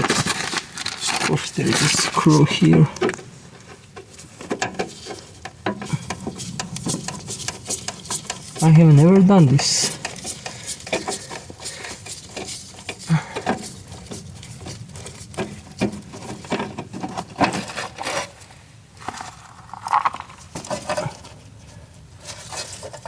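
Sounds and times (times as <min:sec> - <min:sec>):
hand tools clicking and tapping: 0:03.8 - 0:17.6.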